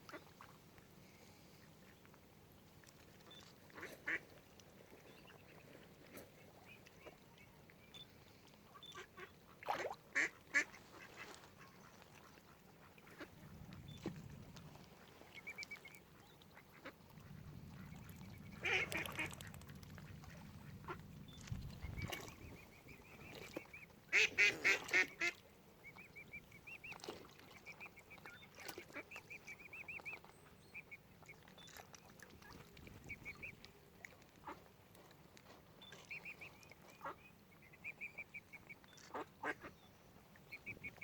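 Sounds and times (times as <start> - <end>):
young waterbirds peeping: 0.0 - 41.0
ducks quacking: 17.8 - 19.6, 24.1 - 25.4.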